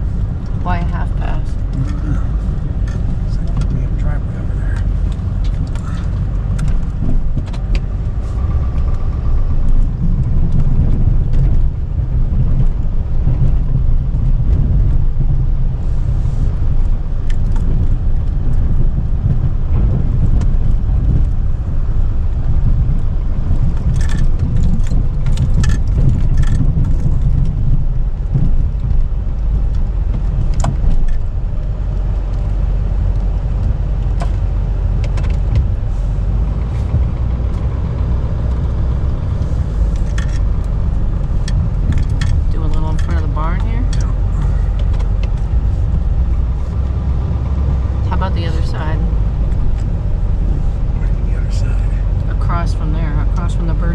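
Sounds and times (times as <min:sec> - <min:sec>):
pickup truck engine rumble: 0:00.0 - 0:53.9.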